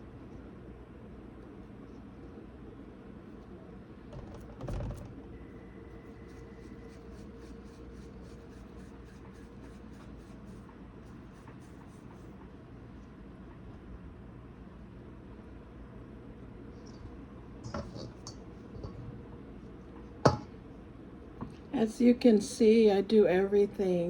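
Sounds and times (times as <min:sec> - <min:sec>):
dough being rolled by hand: 0:05.9 - 0:12.4.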